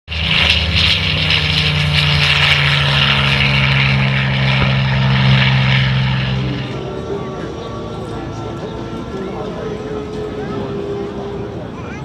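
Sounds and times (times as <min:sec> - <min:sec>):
biplane engines and propellers: 0:00.1 - 0:12.0.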